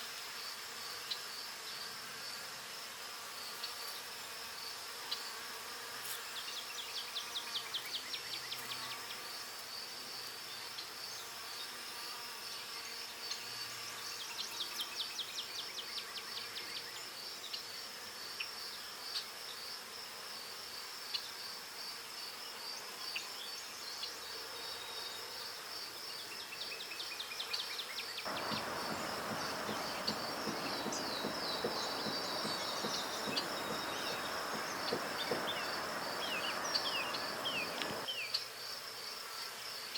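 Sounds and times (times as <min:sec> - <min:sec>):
steady rushing noise: 0:28.3 - 0:38.1
insects trilling and ticking: 0:28.3 - 0:39.9.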